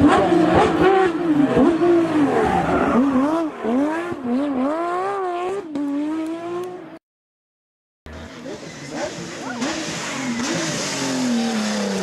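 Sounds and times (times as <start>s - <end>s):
race car engine revving: 0.0s - 7.0s, 8.1s - 12.0s.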